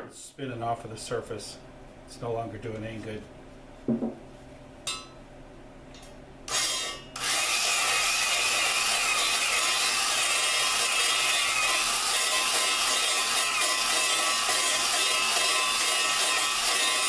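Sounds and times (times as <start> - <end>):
electric drill grinding valve: 6.5 - 17.0.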